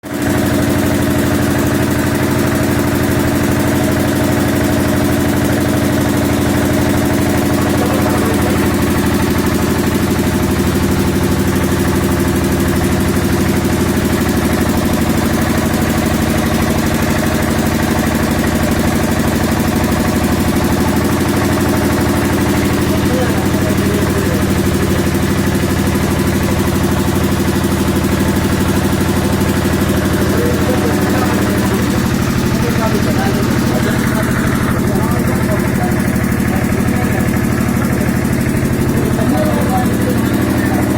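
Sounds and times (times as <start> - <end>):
machine motor pulsing: 0.0 - 40.9.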